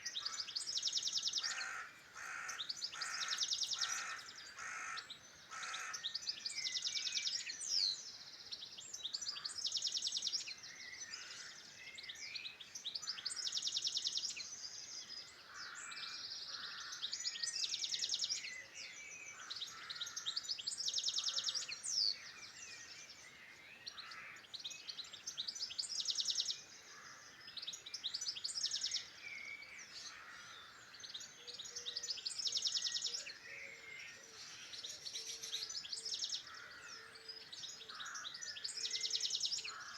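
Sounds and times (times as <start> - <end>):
songbirds singing trilled phrases: 0.0 - 39.9
faint low bird calls: 1.4 - 6.1.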